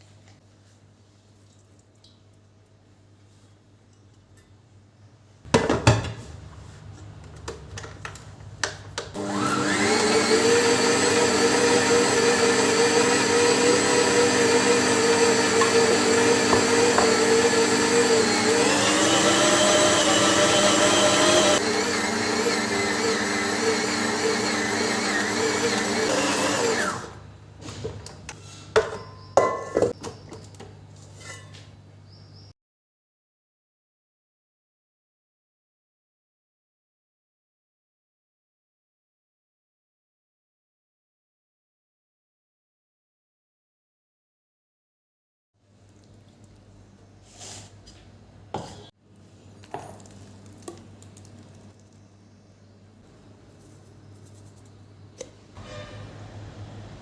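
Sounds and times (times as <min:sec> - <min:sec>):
kitchen mixer motor running: 0:09.2 - 0:27.2.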